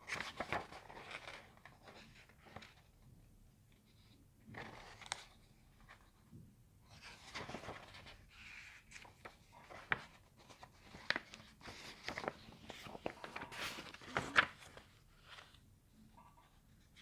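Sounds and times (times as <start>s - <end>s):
soft handling rustling: 3.7s - 15.8s.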